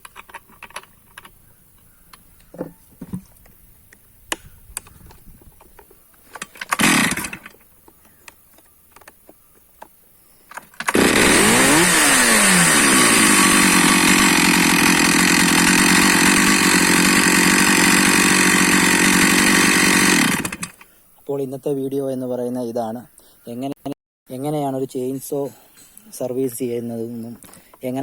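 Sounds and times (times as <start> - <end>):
chainsaw engine running: 6.7 - 7.5, 10.8 - 20.8.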